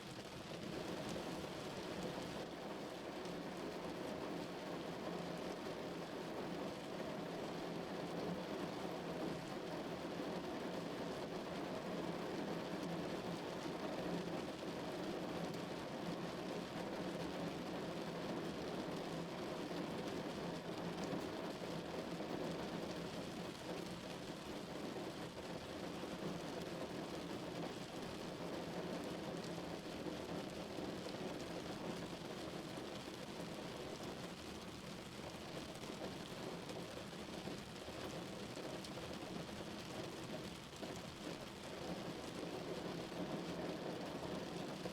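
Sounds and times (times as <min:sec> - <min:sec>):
rain drumming on a car roof: 0:00.0 - 0:44.9.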